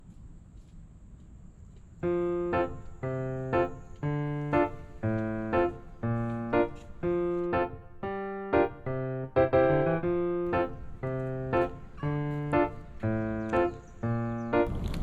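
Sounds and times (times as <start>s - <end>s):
slow keyboard melody: 2.0s - 14.9s.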